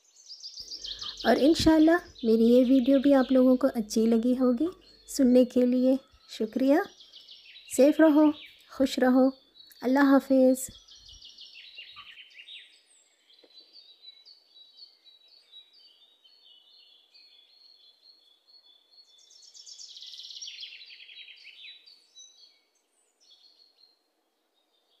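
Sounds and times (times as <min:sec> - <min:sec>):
small birds chirping: 0:00.0 - 0:25.0
bird trills: 0:00.5 - 0:08.8, 0:10.7 - 0:12.8.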